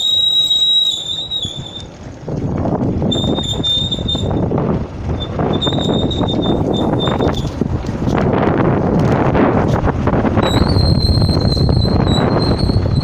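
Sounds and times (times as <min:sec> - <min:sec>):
high whistle-like tone: 0:00.0 - 0:01.9, 0:03.1 - 0:04.4, 0:05.5 - 0:07.4, 0:10.4 - 0:13.0
wind rushing over microphone: 0:00.0 - 0:13.0.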